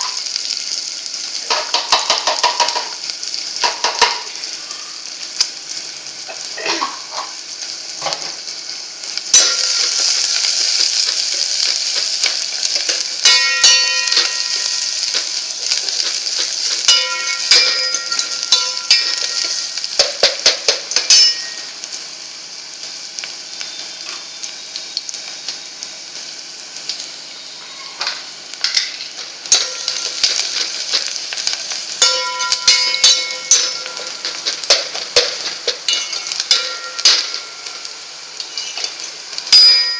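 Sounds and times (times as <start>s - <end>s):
mustard seeds sizzling in hot oil: 0.0s - 39.9s
sharp popping seeds: 9.3s - 21.8s, 29.5s - 39.9s
metal spoon scraping pan: 11.6s - 20.1s, 38.5s - 39.9s.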